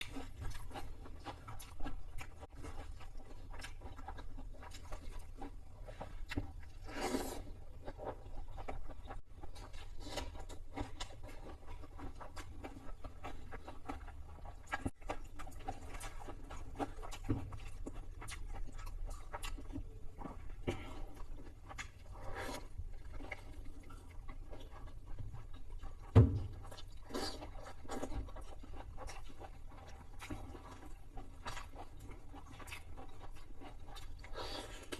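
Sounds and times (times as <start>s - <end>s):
person chewing and crunching food: 0.0s - 34.9s
loud thump: 26.2s - 26.5s.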